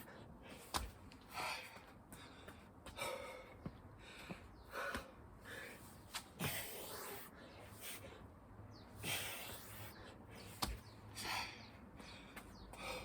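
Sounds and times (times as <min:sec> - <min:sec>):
man gasping breaths: 0:00.0 - 0:08.3, 0:11.1 - 0:13.0.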